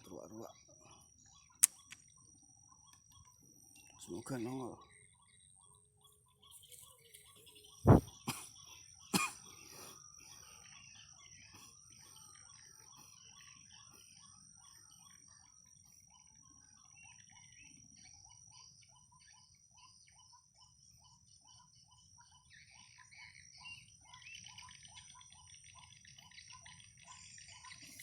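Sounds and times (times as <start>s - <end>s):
high insect buzz: 7.9s - 8.1s.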